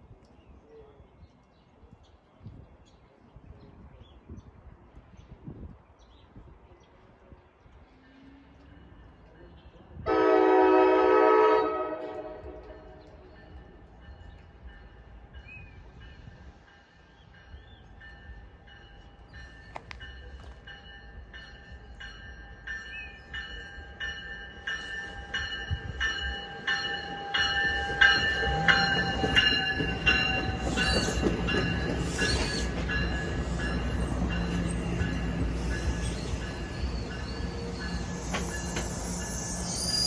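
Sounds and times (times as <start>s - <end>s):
electric train approaching: 8.3s - 40.0s
train wheels clicking over rail joints: 24.2s - 39.6s
high-pitched squealing tones: 34.0s - 40.0s.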